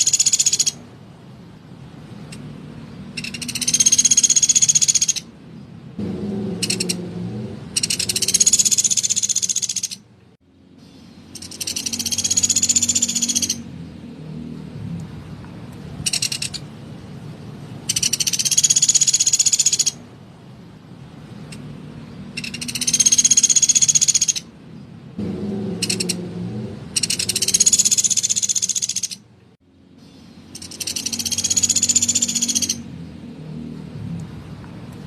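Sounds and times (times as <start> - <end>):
woodpecker rattling call: 0.0 - 0.8, 3.1 - 5.3, 6.5 - 7.1, 7.7 - 10.1, 10.8 - 13.7, 16.0 - 16.7, 17.8 - 20.0, 22.3 - 24.5, 25.6 - 26.3, 26.9 - 29.3, 30.0 - 32.9.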